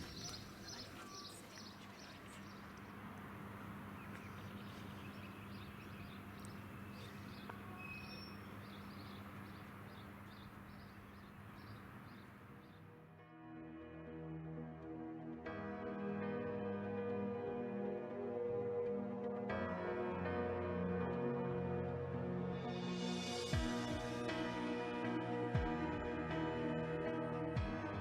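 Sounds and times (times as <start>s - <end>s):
outdoor background noise: 0.0s - 13.2s
bird chirping high notes: 3.4s - 12.8s.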